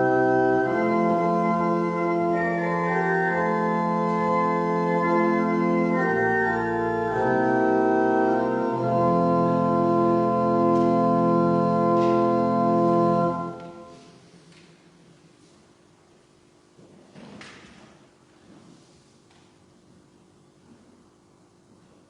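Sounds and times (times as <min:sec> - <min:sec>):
organ chords: 0:00.0 - 0:14.2.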